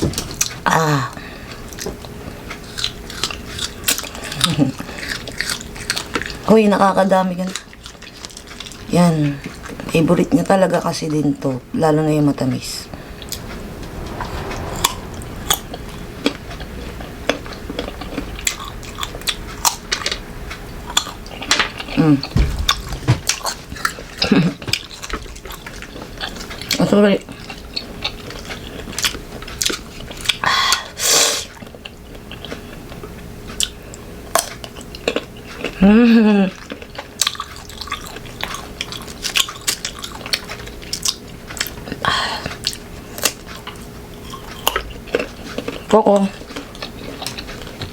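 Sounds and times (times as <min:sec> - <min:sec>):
biting and chewing crunchy mango: 0:02.2 - 0:06.5, 0:36.5 - 0:41.9, 0:42.6 - 0:47.9.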